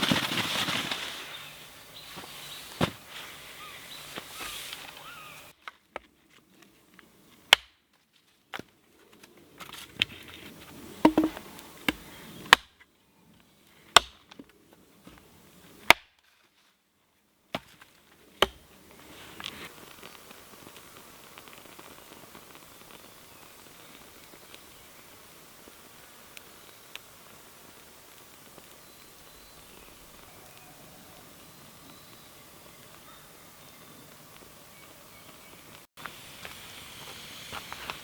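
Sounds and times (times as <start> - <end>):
soft outdoor hiss: 0.0 - 38.0
tool striking wood: 11.1 - 11.4.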